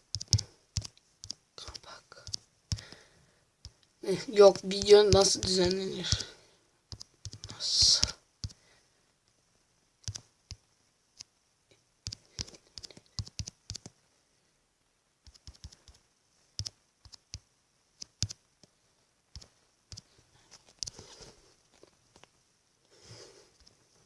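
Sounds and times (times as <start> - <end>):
typing taps on a smartphone: 0.1 - 1.4, 2.2 - 3.0, 6.9 - 8.6, 10.0 - 10.6, 12.0 - 14.0, 15.2 - 16.0, 16.6 - 18.7.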